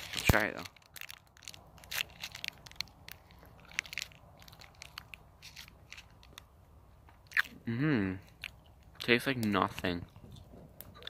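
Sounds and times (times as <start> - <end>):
crunchy chewing of granola bar: 0.0 - 6.5.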